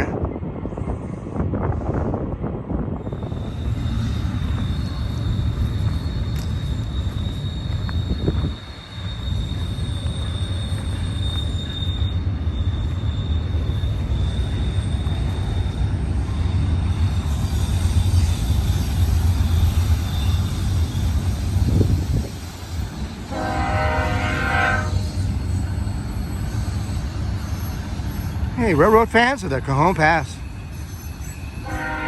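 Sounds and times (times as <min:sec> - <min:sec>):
freight train rumbling: 0:00.0 - 0:32.0
high-pitched squeal: 0:03.0 - 0:32.0.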